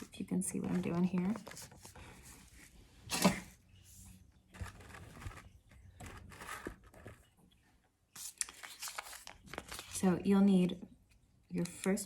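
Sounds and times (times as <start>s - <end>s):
cardboard and paper rustling: 0.0s - 7.3s, 8.2s - 10.1s.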